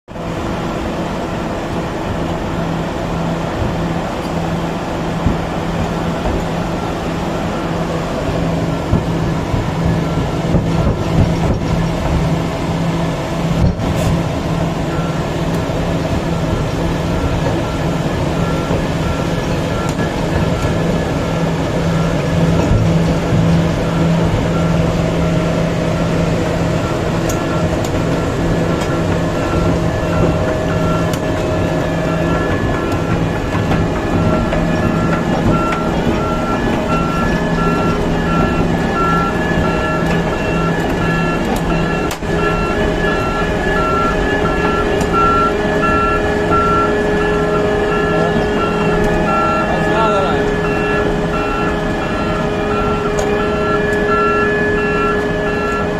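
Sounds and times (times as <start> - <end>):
excavator engine drone: 0.1 - 55.9
repeating beep: 26.8 - 55.9.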